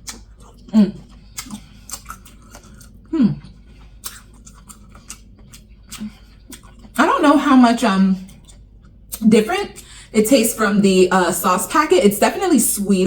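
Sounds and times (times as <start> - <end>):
sharp mouth clicks: 0.0 - 6.9
wet chewing and lip smacking: 0.0 - 7.0, 8.2 - 9.2
person humming mmm: 3.1 - 4.2.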